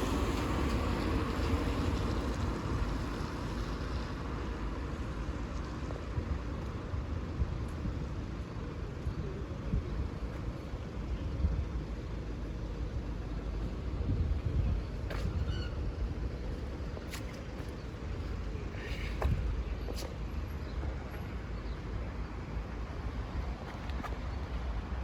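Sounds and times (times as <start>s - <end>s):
wind buffeting microphone: 13.7s - 17.1s.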